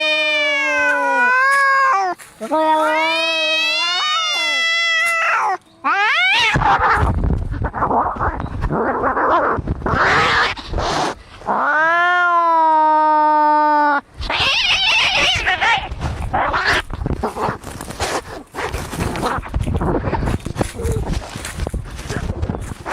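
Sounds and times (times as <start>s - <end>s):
cat yowling low: 0.0s - 7.1s
cats snarling and hissing: 0.0s - 22.9s.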